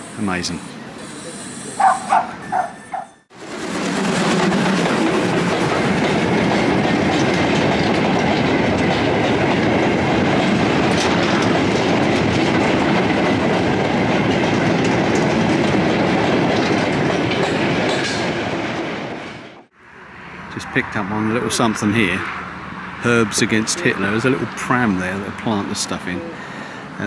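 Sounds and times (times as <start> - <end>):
train wagons rumbling past: 0.7 - 27.0.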